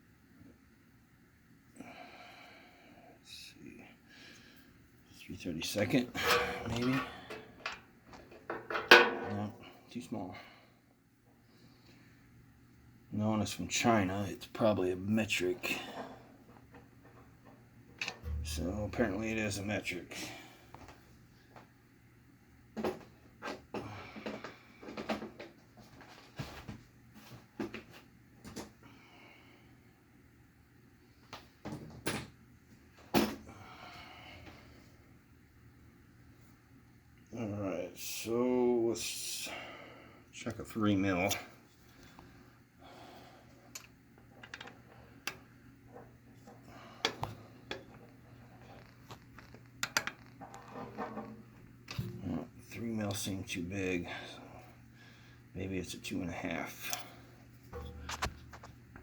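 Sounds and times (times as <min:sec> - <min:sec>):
metal tools clinking: 0:06.1 - 0:07.8.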